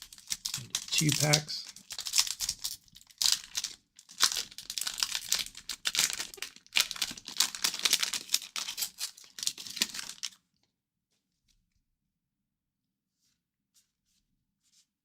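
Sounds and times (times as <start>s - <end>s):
card pack wrapper crinkling: 0.0s - 10.4s.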